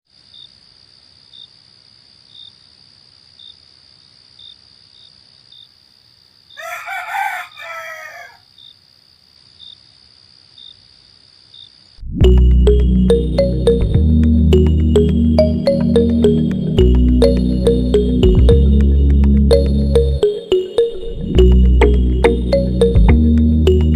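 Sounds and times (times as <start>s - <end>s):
rooster crowing: 6.5s - 8.5s
music: 12.0s - 23.9s.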